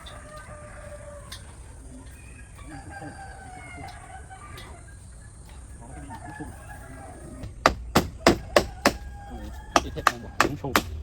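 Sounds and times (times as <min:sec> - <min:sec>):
chickens clucking: 0:00.0 - 0:11.0
rooster crowing: 0:00.0 - 0:11.0
sharp loud knocks: 0:07.4 - 0:11.0.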